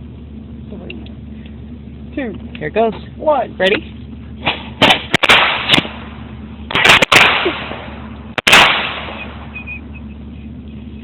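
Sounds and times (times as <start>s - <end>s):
firecrackers banging: 4.4s - 10.0s.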